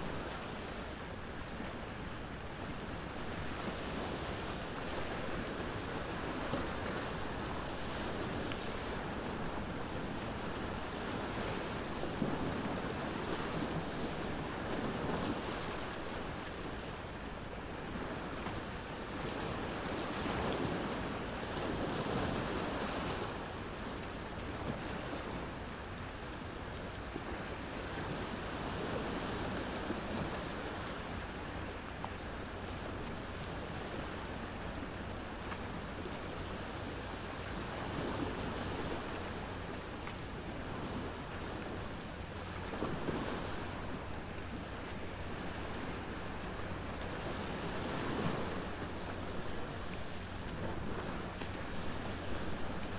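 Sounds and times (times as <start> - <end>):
ocean waves washing: 33.7 - 52.9.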